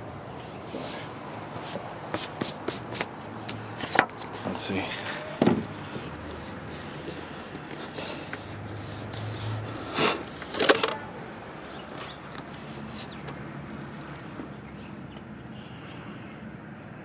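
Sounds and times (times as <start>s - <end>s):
short scrapes: 0.5s - 11.2s.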